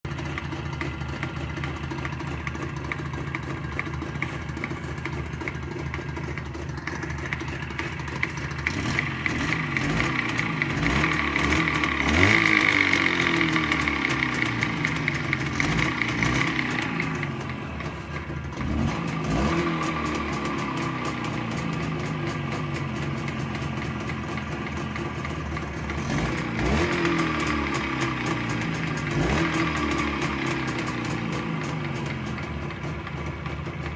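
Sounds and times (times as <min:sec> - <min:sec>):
two-stroke motorcycle engine: 0:00.0 - 0:33.9
sharp metallic engine knock: 0:00.1 - 0:33.9.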